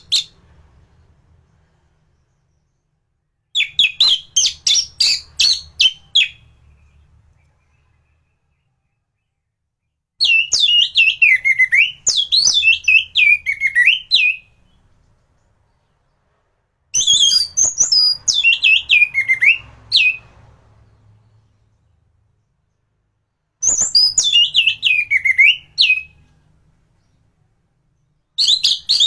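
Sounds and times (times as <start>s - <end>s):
bird singing whistled notes: 0.0s - 0.4s, 3.5s - 9.5s, 10.2s - 14.9s, 17.0s - 20.3s, 23.6s - 26.4s, 28.0s - 29.0s.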